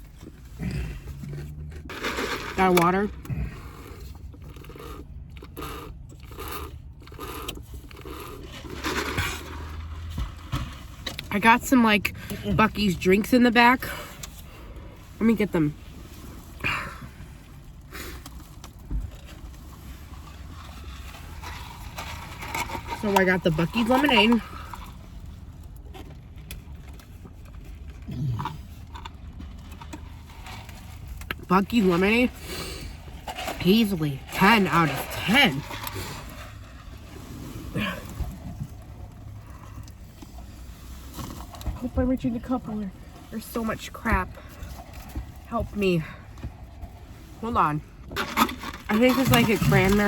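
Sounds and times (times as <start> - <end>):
food packaging rustling: 0.0 - 11.3
car interior hum: 0.0 - 50.0
person murmuring mm: 28.1 - 28.6.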